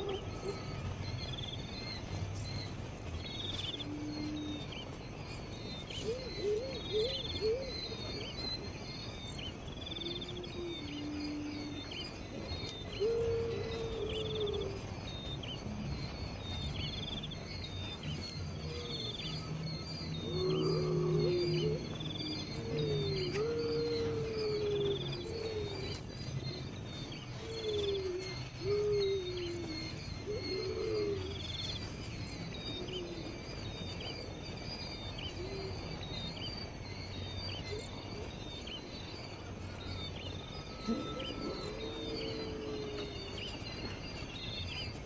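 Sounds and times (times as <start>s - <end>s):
insects chirping: 0.0s - 45.0s.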